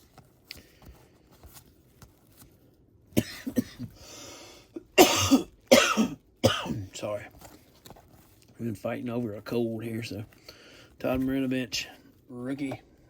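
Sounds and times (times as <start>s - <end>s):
man coughing: 3.2s - 4.0s, 4.8s - 7.0s.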